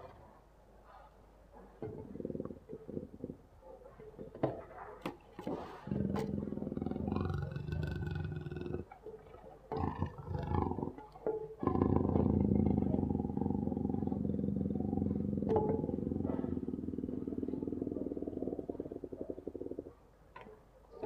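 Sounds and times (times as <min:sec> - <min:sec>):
big cat growling: 0:01.8 - 0:03.5, 0:05.5 - 0:20.0.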